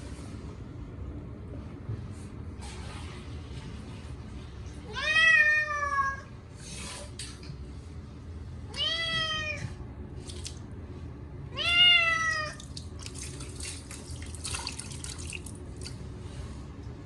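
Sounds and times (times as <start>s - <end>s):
cat meowing loudly: 8.7s - 9.8s, 11.5s - 12.6s
water splashing and dripping: 10.2s - 10.7s, 12.3s - 16.0s.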